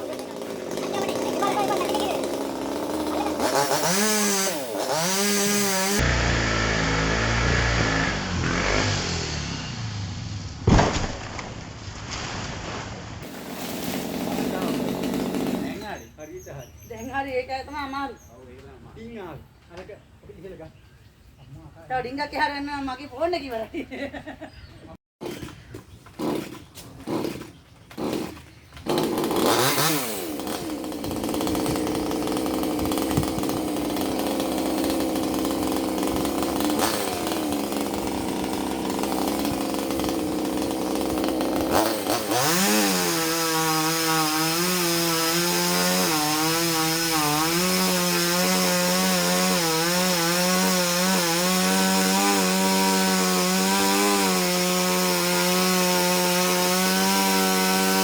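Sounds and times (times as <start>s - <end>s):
chainsaw cutting wood: 0.0s - 9.8s, 13.2s - 16.1s, 25.2s - 58.0s.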